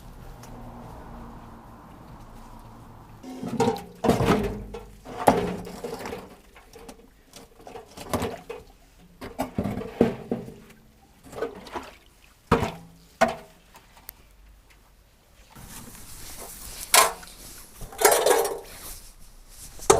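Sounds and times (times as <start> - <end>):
metal parts knocking and clanking: 17.9 - 18.7.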